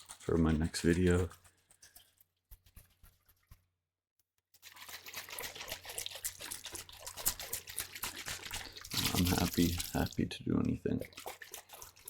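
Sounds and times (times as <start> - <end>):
fizzy crackling of liquid: 4.6 - 12.0.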